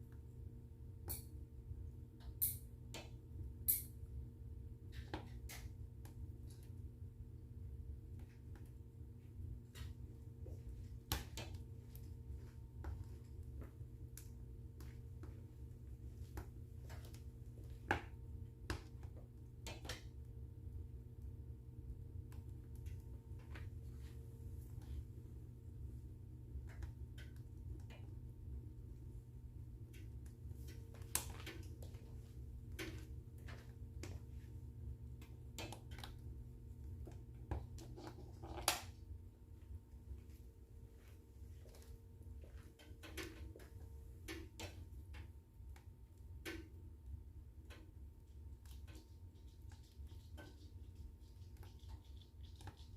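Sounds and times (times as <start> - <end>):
low steady rumble and hum: 0.0 - 52.9
wood fire crackling: 7.8 - 40.3
wood fire crackling and popping: 29.8 - 36.4.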